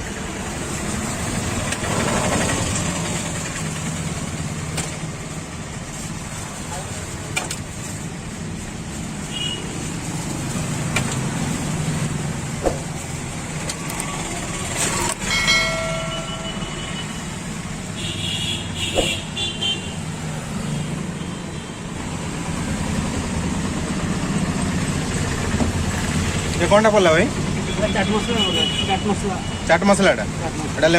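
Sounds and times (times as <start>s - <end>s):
vehicle engines rumbling: 0.0s - 30.9s
car horns honking: 9.3s - 9.8s, 15.0s - 20.1s, 27.6s - 29.8s.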